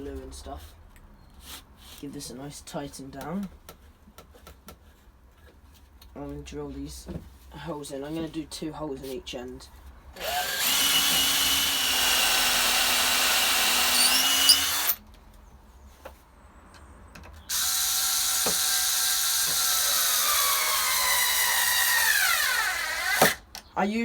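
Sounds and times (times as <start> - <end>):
power drill boring into wood: 10.2 - 15.0, 17.5 - 23.4.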